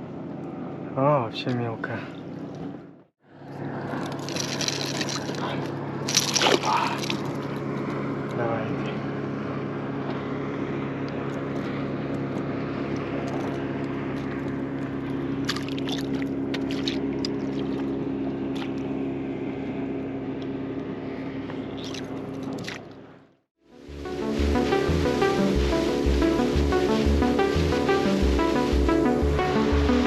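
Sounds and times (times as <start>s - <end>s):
outboard motor running: 3.2s - 23.1s.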